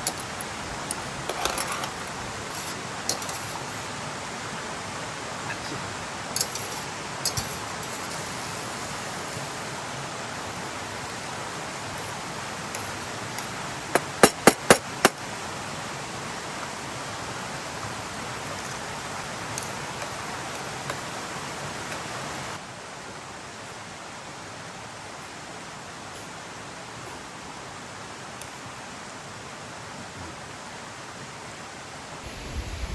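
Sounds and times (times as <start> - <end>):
stream water running: 0.0 - 32.9
sharp knocks: 13.9 - 15.2.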